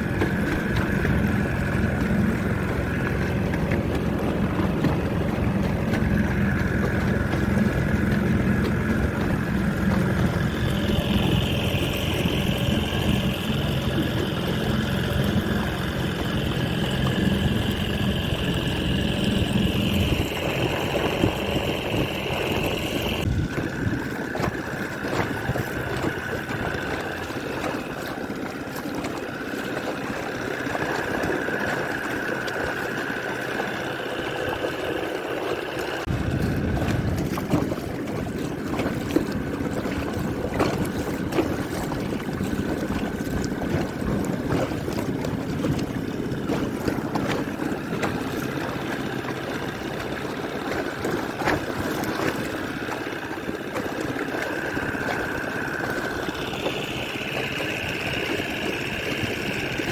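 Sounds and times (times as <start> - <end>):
small boat motor whining: 0.0 - 59.9
water splashing against boat: 0.0 - 59.9.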